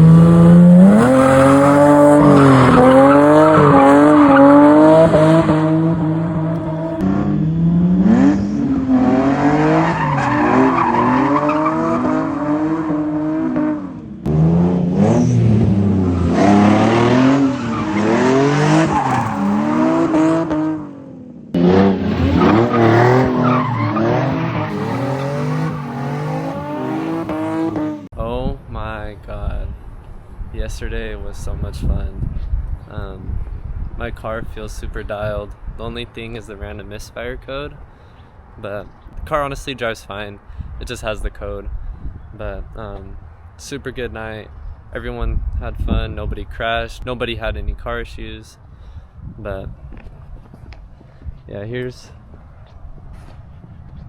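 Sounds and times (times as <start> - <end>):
tires squealing: 0.0 - 21.0, 21.6 - 28.1
car engine revving: 0.0 - 28.1.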